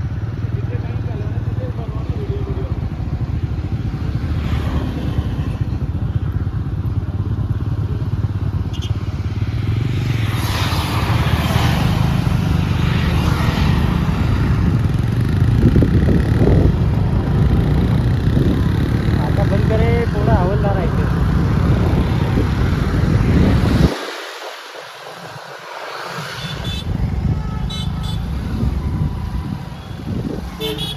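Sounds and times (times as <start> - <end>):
motorcycle engine running: 0.0 - 10.2, 11.9 - 23.5
rushing noise: 9.7 - 30.9.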